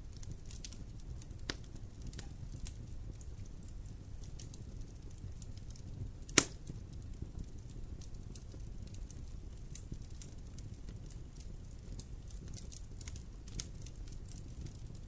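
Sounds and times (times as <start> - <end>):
wood fire crackling: 0.0 - 15.0
loud sharp pop of fire: 6.3 - 6.8.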